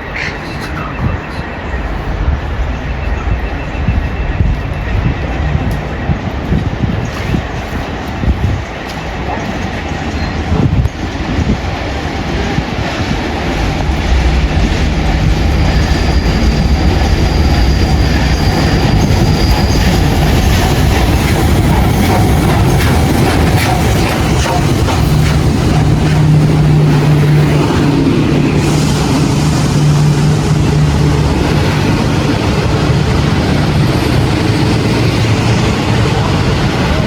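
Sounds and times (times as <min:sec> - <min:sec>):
train wheels clattering: 0:00.0 - 0:37.0
high wheel squeal: 0:14.3 - 0:22.9.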